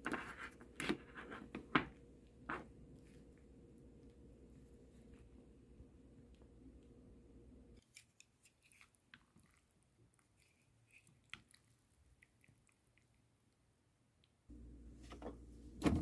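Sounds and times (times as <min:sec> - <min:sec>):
faint steady hum: 0:00.0 - 0:07.8, 0:13.6 - 0:16.0.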